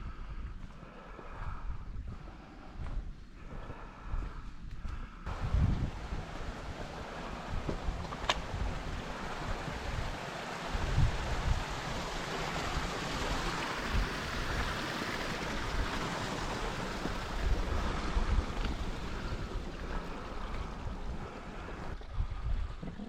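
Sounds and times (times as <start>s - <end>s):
gusts buffeting microphone: 5.2s - 23.0s
wind rushing: 5.3s - 22.0s.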